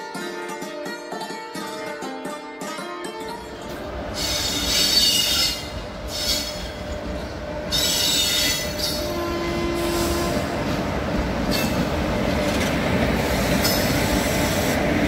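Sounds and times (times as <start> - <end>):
train rumbling over track: 3.4 - 15.0
steel wheels squealing: 4.1 - 10.4, 11.5 - 11.9.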